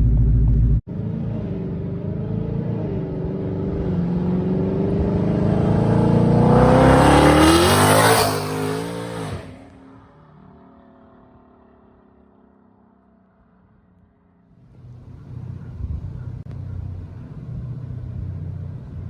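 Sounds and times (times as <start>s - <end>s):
low rumble: 0.0s - 0.9s
car engine accelerating hard: 0.0s - 19.0s.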